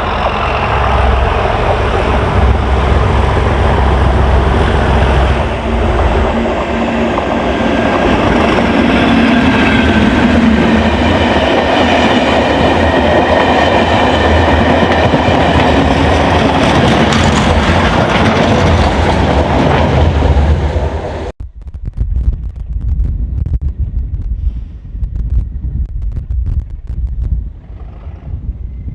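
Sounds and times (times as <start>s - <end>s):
train wheel clatter: 0.0s - 21.1s
diesel locomotive engine hum: 0.0s - 21.4s
wind buffeting microphone: 0.0s - 28.9s.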